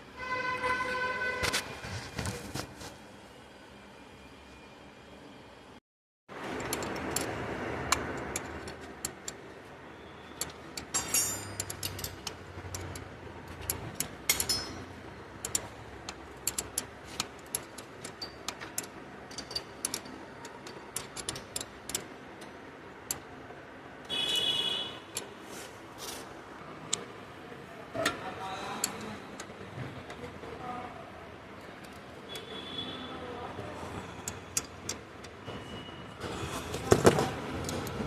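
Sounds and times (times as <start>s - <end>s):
tools and metal parts clicking: 6.5s - 9.4s, 10.3s - 23.3s.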